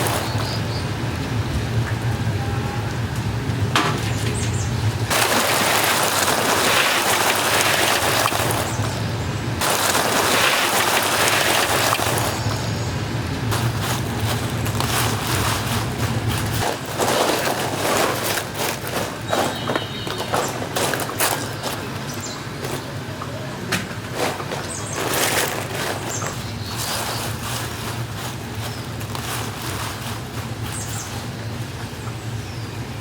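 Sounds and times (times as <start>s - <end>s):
food deep-frying in oil: 3.0s - 16.7s.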